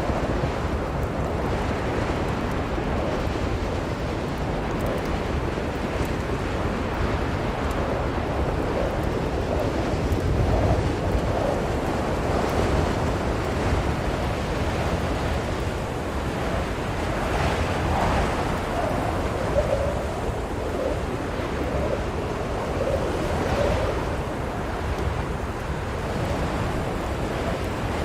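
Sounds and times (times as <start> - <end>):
blizzard wind howling: 0.0 - 28.0.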